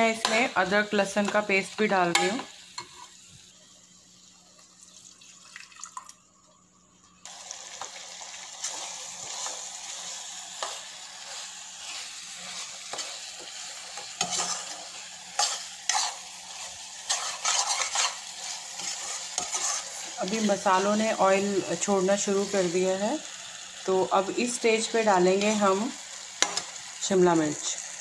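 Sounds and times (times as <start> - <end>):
masala sizzling in a wok: 0.0 - 5.5, 6.2 - 28.0
steel spoon scraping a wok: 1.8 - 3.2, 8.6 - 20.9.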